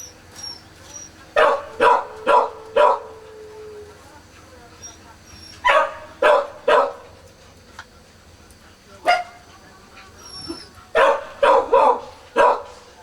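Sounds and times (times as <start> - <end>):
puppies squealing cries: 0.0 - 3.6, 4.8 - 6.2, 10.0 - 12.7.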